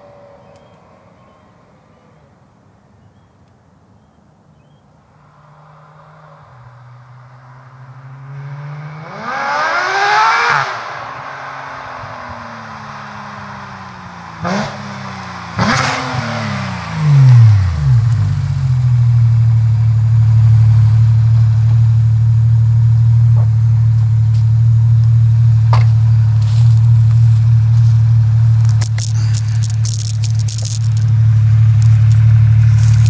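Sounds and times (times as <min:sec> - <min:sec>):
sports car engine revs falling: 0:08.1 - 0:33.0
car engine idling: 0:10.9 - 0:33.0.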